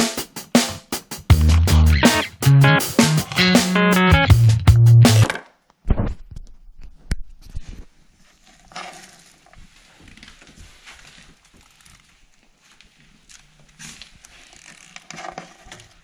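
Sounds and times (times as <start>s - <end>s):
rustling: 7.4s - 16.0s.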